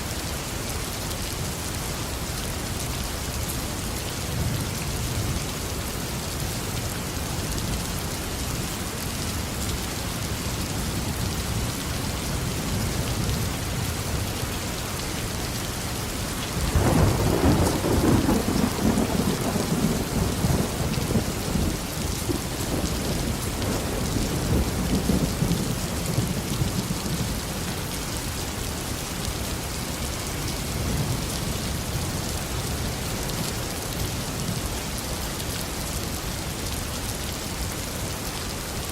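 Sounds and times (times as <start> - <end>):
rain falling: 0.0 - 38.9
thunderclap rumbling: 16.6 - 27.4.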